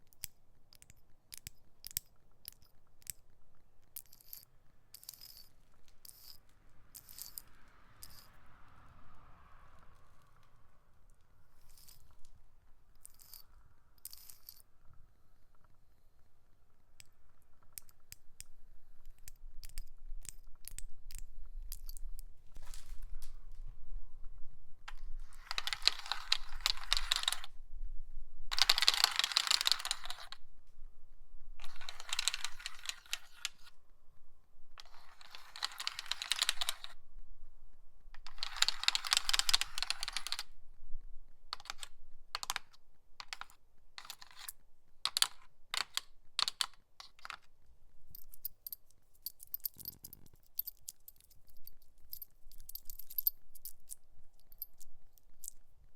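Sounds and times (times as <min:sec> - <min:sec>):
nail scratching box: 0:31.6 - 0:33.7, 0:34.8 - 0:37.0, 0:38.2 - 0:40.5.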